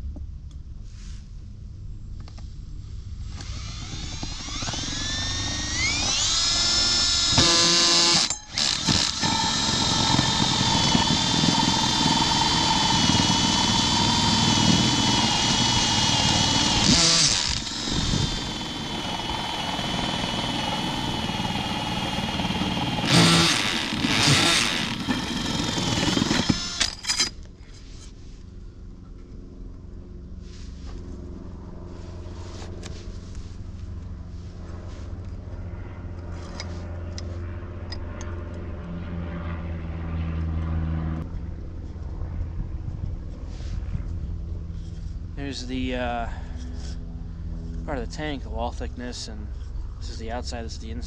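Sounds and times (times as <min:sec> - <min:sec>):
power tool motor whining: 0:03.3 - 0:27.4.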